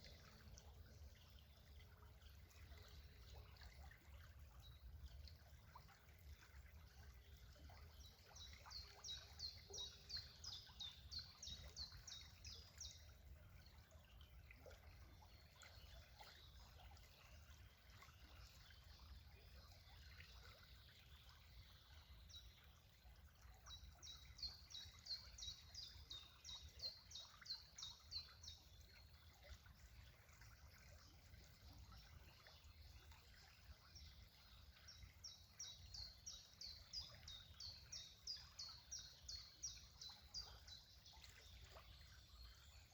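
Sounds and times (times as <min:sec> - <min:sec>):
songbird singing: 0:31.9 - 0:42.9.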